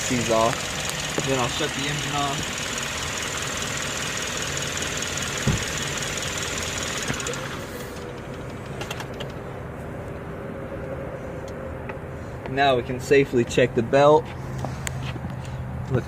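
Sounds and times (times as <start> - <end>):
car engine idling: 0.0 - 12.5.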